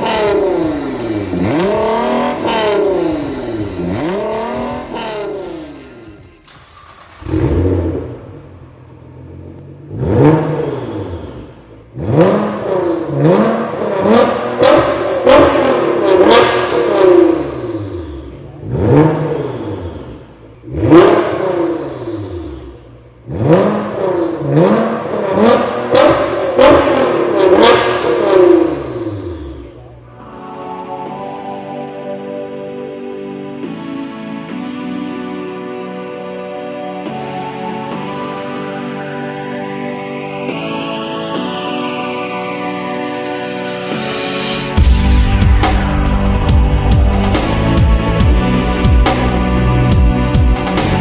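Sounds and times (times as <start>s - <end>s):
car engine revving: 0.0s - 30.3s, 43.0s - 51.0s.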